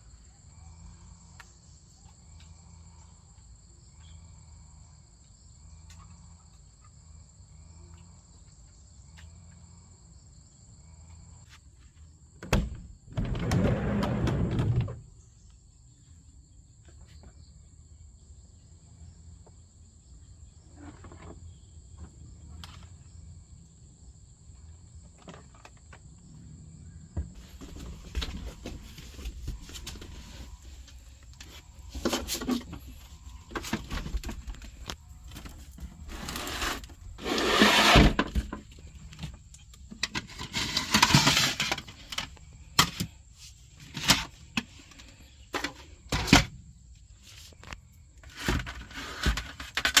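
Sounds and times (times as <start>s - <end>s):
rustling: 27.4s - 39.2s.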